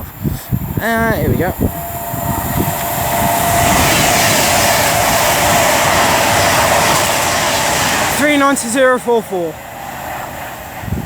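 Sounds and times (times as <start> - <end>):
train passing at speed: 0.0 - 11.0.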